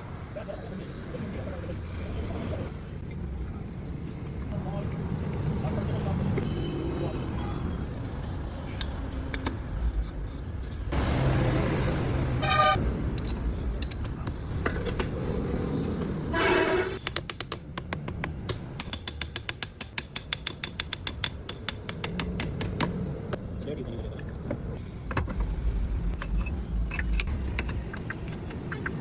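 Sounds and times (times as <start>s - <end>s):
passing traffic: 0.0s - 18.9s, 20.6s - 29.0s
vehicle horn toots: 12.3s - 12.8s, 16.3s - 17.0s.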